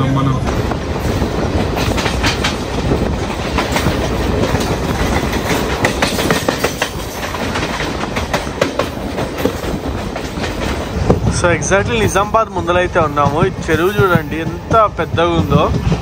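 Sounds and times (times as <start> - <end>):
steady train rumble: 0.0 - 16.0
train wheels clattering: 0.5 - 16.0.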